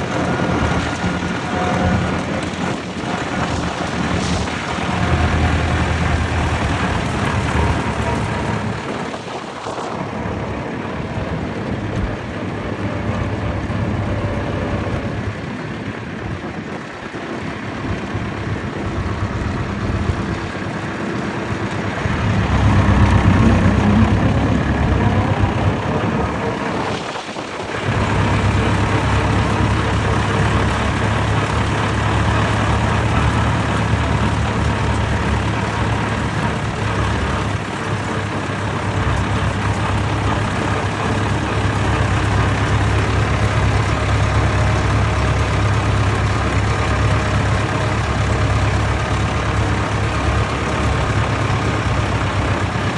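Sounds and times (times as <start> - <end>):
tractor engines running: 0.0 - 52.9.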